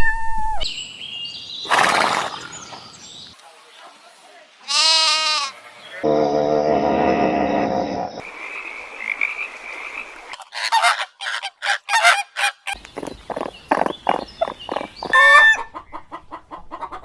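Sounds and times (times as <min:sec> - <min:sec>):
animal calls: 0:06.0 - 0:15.7.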